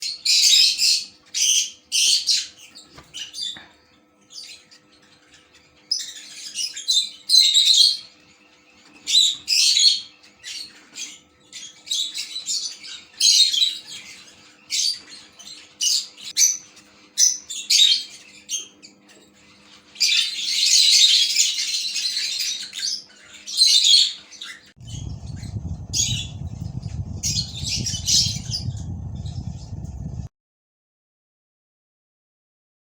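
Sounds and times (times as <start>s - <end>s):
birds chirping and squawking: 0.0s - 30.3s
low rumbling noise: 24.8s - 30.3s.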